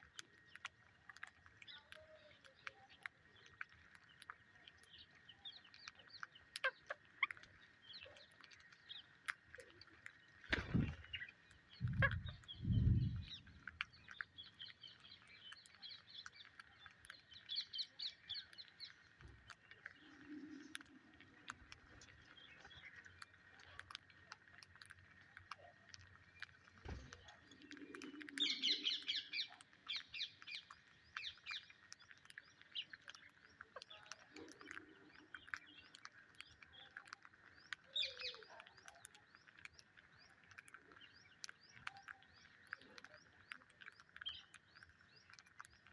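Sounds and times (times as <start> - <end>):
parrots chirping: 10.3 - 13.4.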